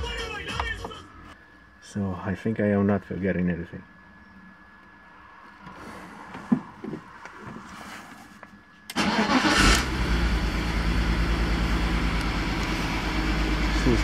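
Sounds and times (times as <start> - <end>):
car engine starting and idling: 8.9 - 14.0.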